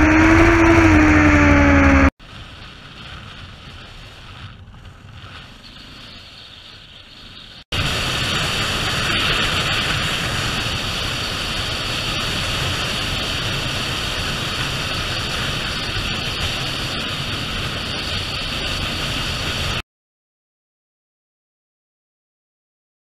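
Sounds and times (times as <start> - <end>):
wind rushing: 0.0 - 5.4
motorcycle engine rumble: 0.0 - 7.6.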